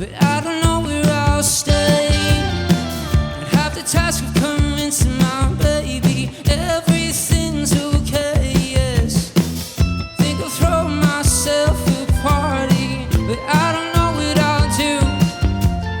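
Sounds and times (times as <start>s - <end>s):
bass: 0.0s - 16.0s
drums keeping a steady beat: 0.0s - 16.0s.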